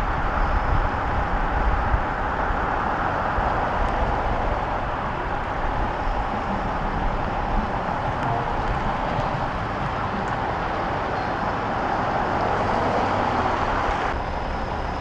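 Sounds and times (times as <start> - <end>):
vehicle engines idling: 0.0 - 15.0.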